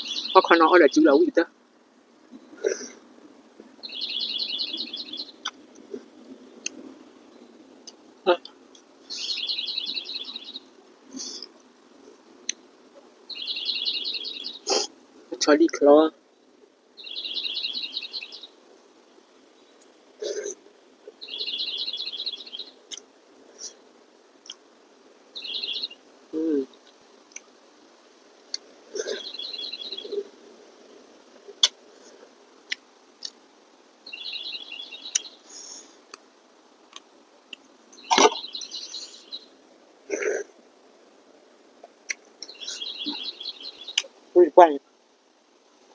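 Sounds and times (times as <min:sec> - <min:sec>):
songbird trilling: 0:00.0 - 0:01.2, 0:03.8 - 0:05.6, 0:09.1 - 0:11.5, 0:13.3 - 0:14.9, 0:17.0 - 0:18.6, 0:21.1 - 0:23.0, 0:25.4 - 0:27.5, 0:28.5 - 0:30.3, 0:34.0 - 0:35.8, 0:38.0 - 0:39.5, 0:42.4 - 0:44.1.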